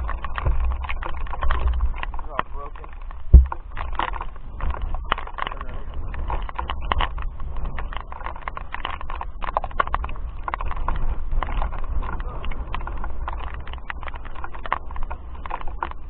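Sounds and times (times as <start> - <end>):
irregular clicks and knocks: 0.0 - 16.0
loud thump: 3.3 - 3.6.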